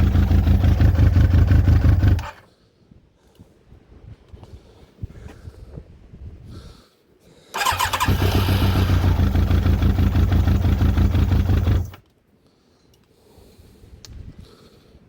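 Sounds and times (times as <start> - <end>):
motorcycle engine running: 0.0 - 2.4, 7.6 - 12.0
starter motor cranking: 0.7 - 2.4, 7.6 - 12.0.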